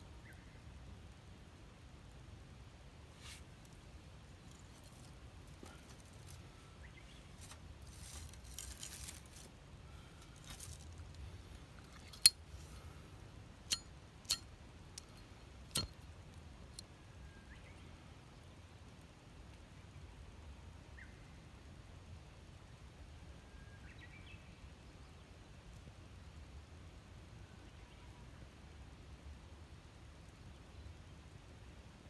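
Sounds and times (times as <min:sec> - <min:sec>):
soft rustle: 0:03.1 - 0:13.0.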